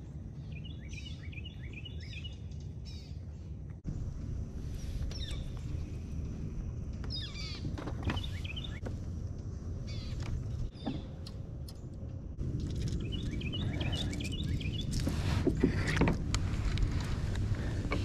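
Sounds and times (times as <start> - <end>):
birds chirping: 0.0 - 3.8, 4.7 - 8.9, 9.8 - 15.1
steady low rumble: 0.0 - 18.0.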